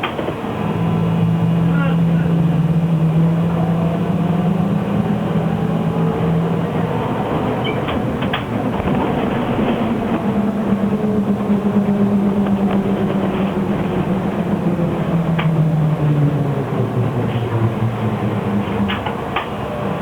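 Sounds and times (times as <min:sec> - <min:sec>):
road and body noise: 0:00.0 - 0:20.0.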